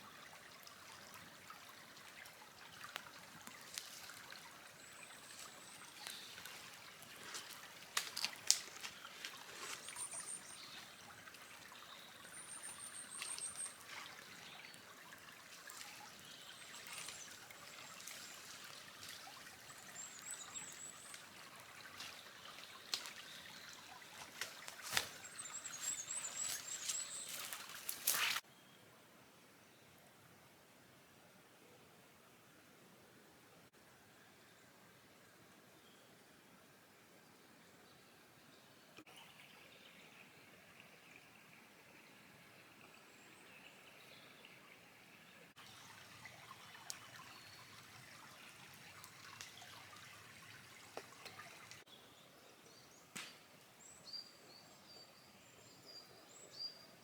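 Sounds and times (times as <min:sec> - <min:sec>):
campfire crackling: 0:06.4 - 0:09.8.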